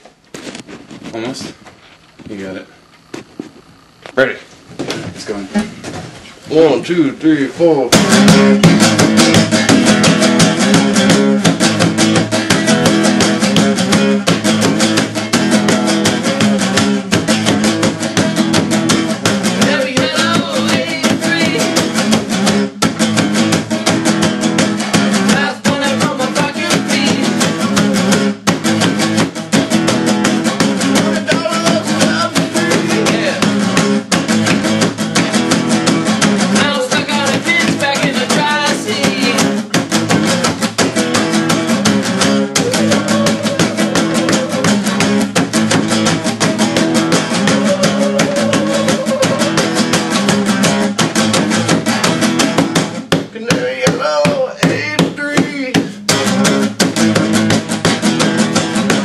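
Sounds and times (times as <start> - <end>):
instrumental rock music: 7.2 - 59.0.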